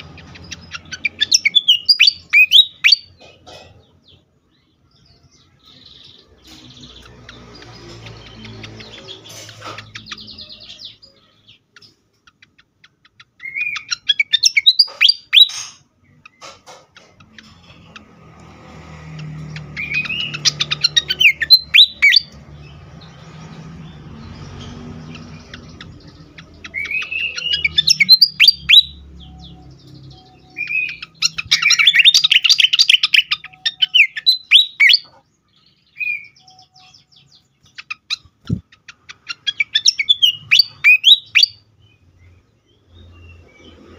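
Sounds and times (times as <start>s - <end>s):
bird whistling and chattering: 0.0s - 3.2s, 11.8s - 16.3s, 19.5s - 22.4s, 25.0s - 35.2s, 36.0s - 41.7s.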